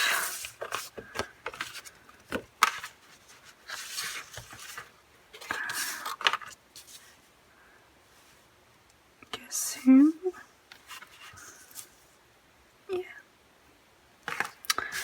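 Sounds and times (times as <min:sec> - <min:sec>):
cd packaging rustling: 0:00.0 - 0:07.1, 0:14.3 - 0:15.0.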